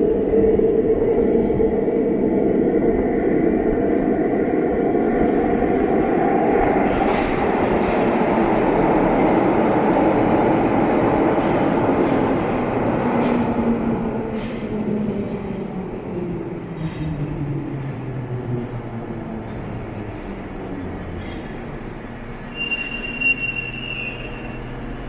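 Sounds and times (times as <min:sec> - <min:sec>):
train rumbling through platform: 0:00.0 - 0:25.0
high squeal from wheels: 0:11.4 - 0:19.6, 0:21.2 - 0:25.0.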